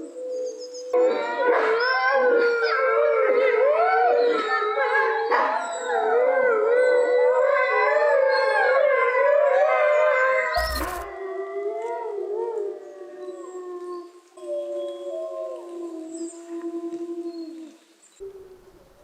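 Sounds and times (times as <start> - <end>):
wolves howling in chorus: 0.0 - 19.0
brief click: 10.6 - 11.2.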